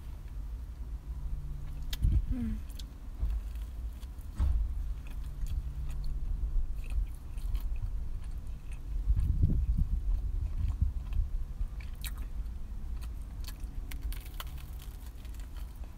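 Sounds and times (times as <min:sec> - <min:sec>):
chewing close to microphone: 0:01.6 - 0:15.9
biting into toasted sandwich: 0:12.9 - 0:15.9.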